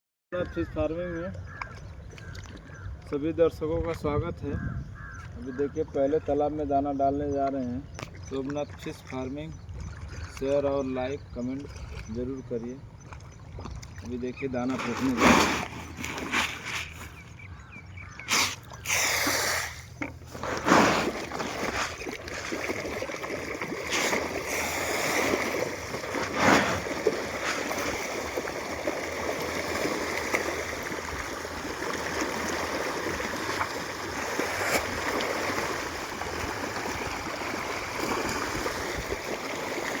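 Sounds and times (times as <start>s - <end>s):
water splashing from feeding fish: 18.3s - 40.0s.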